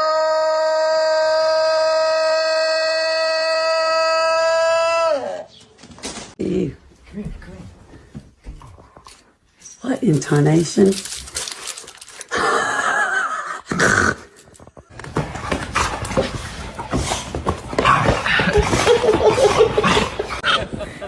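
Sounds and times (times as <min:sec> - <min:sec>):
clattering and scuffling: 0:14.4 - 0:21.0.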